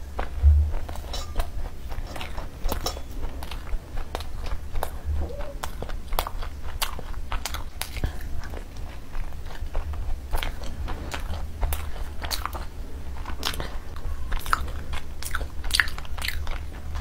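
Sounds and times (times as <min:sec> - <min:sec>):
low hum: 0:00.0 - 0:07.4
biting and chewing bread: 0:00.0 - 0:17.0.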